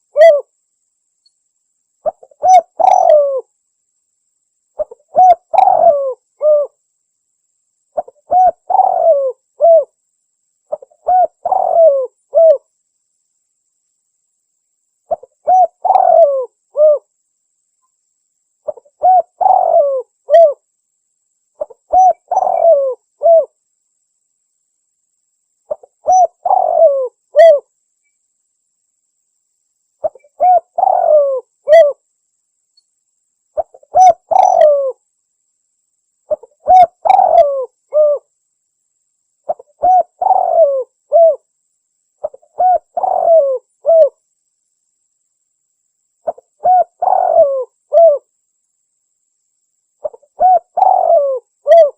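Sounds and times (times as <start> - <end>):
dove cooing: 0.0 - 0.5, 2.0 - 3.5, 4.8 - 6.8, 8.0 - 10.0, 10.7 - 12.6, 15.1 - 17.1, 18.6 - 20.6, 21.6 - 23.6, 25.7 - 27.7, 30.0 - 32.0, 33.6 - 35.0, 36.3 - 38.3, 39.5 - 41.4, 42.2 - 44.2, 46.2 - 48.3, 50.0 - 51.9.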